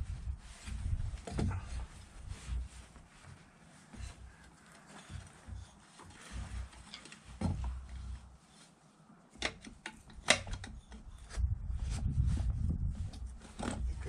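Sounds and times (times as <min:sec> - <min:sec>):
low rumbling: 0:00.0 - 0:02.4, 0:11.3 - 0:14.0
tools clicking and knocking: 0:09.4 - 0:11.3.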